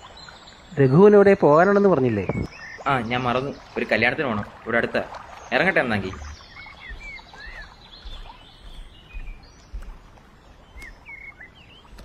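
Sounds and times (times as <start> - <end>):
small birds chirping: 0.0 - 12.0
soft low bumps: 3.3 - 12.0.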